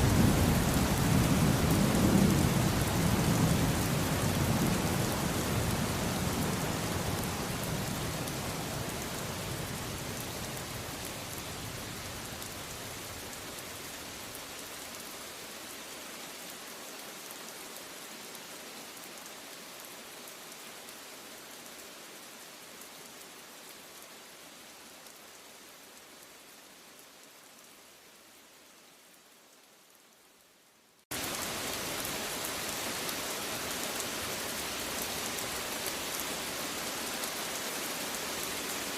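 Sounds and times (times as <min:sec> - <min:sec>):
low rumble of thunder: 0:00.0 - 0:12.4
steady rain: 0:00.0 - 0:38.9.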